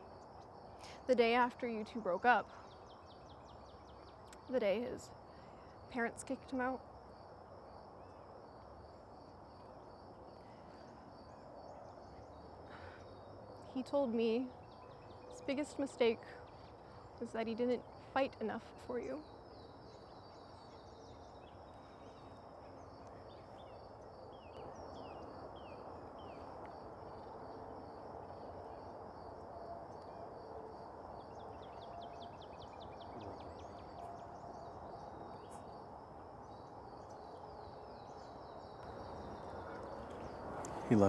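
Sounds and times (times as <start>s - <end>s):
low background rush: 0.0s - 41.0s
birds chirping: 31.2s - 41.0s.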